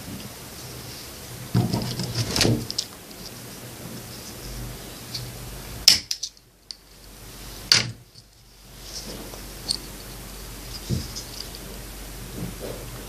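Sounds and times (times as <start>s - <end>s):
plastic parts handled by hand: 1.5s - 3.4s, 7.7s - 11.8s.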